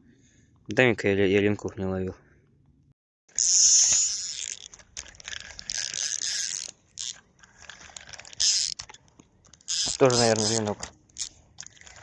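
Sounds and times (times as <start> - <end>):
fishing reel gears whirring: 3.3 - 12.0
fishing reel ratchet clicking: 3.4 - 11.8.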